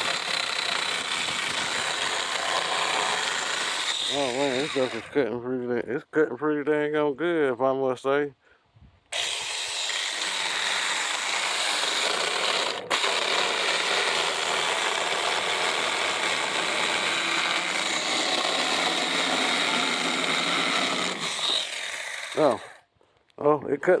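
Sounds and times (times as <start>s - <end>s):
mini chainsaw cutting wood: 0.0s - 5.2s, 9.1s - 22.8s.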